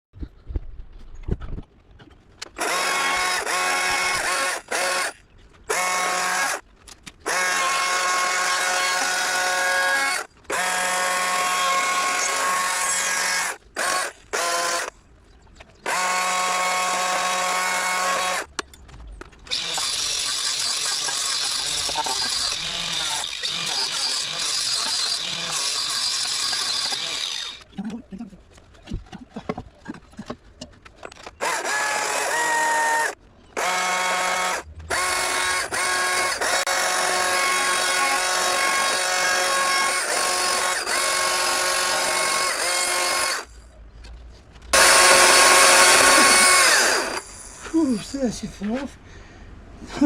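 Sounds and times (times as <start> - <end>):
power tool running: 2.6 - 6.6, 7.2 - 14.9, 15.8 - 18.5, 19.5 - 27.7, 31.3 - 43.6, 44.7 - 48.0.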